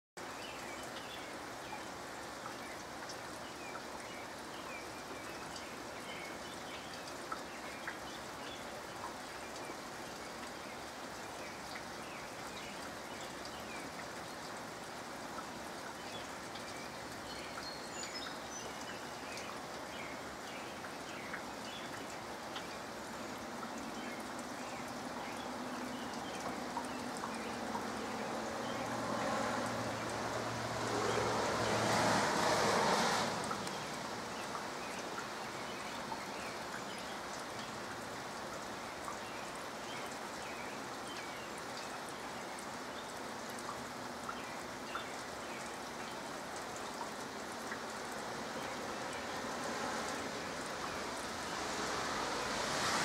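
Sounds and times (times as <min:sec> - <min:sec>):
rain falling: 0:00.2 - 0:53.0
water dripping: 0:00.2 - 0:53.0.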